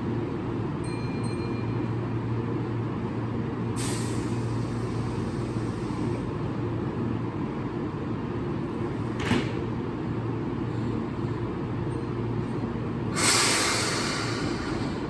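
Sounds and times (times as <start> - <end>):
compressed air hiss: 3.8 - 6.2, 13.1 - 15.0
electric train humming: 12.7 - 15.0.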